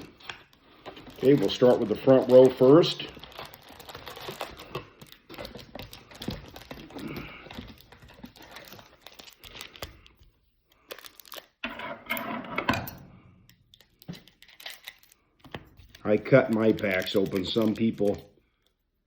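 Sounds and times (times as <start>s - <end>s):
card wrappers crinkling: 0.0s - 11.6s, 13.5s - 18.8s.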